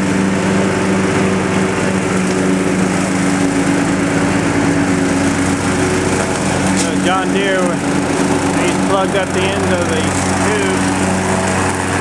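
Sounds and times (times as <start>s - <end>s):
mower blade mulching wet leaves: 0.0s - 12.0s
mower engine running: 0.0s - 12.0s.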